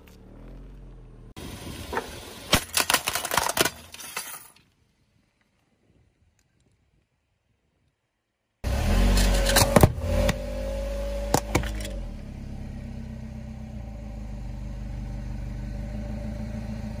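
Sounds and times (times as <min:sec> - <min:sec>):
car engine running: 0:00.0 - 0:02.5, 0:08.6 - 0:17.0.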